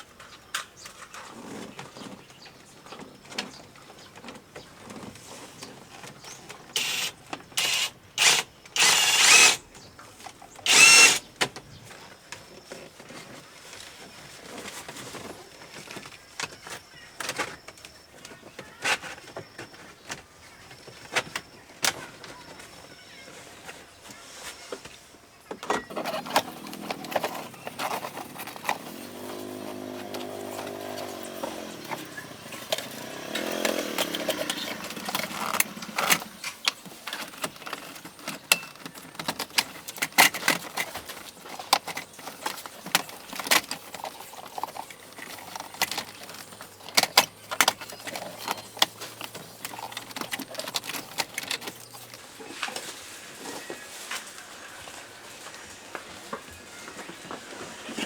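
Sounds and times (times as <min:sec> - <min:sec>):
hand tools clicking and clattering: 0:02.8 - 0:13.3, 0:25.6 - 0:53.1.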